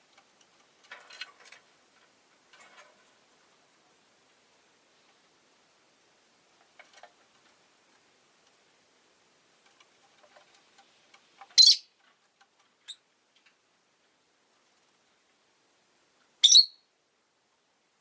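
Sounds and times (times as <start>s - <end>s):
faint clicks and ticks: 0.0s - 3.2s, 6.4s - 8.8s, 9.5s - 15.4s
lovebird chirping: 11.6s - 11.9s, 16.4s - 16.9s.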